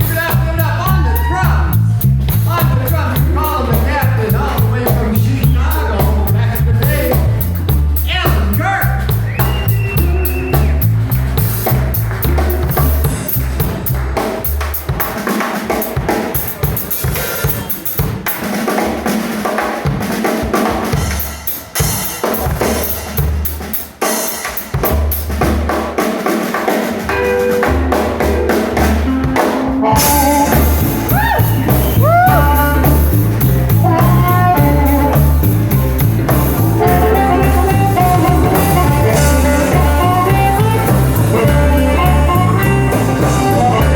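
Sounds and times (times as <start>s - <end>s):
walking bass line: 0.0s - 15.2s, 27.1s - 43.9s
drum kit playing: 0.0s - 43.9s
electric guitar bending notes: 27.0s - 43.9s.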